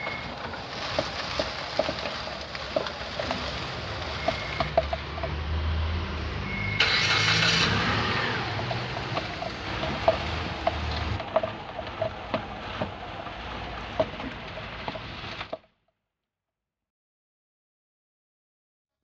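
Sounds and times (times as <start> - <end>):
suspension clicks and knocks: 0.0 - 5.6, 7.6 - 15.6
low vehicle rumble: 0.0 - 15.6.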